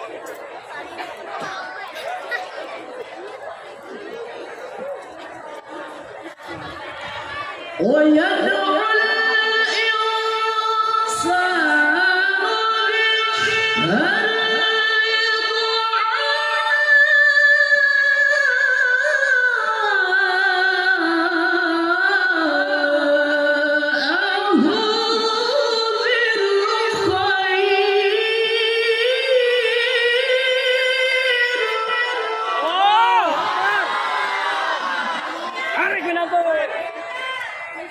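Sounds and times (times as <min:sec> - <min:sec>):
person reciting melodically: 0:07.7 - 0:33.4.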